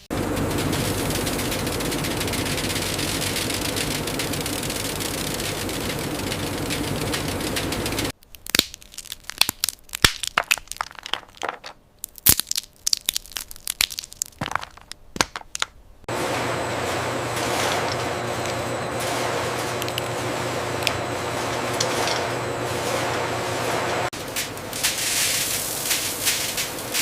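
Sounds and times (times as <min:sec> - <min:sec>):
machinery noise: 0:00.0 - 0:08.2, 0:16.1 - 0:27.0
sharp cracks and crunches: 0:00.3 - 0:15.8.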